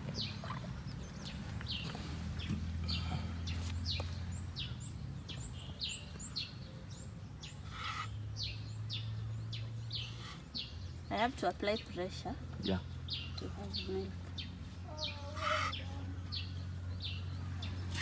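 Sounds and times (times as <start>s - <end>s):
faint high bird chirps: 14.9s - 18.0s.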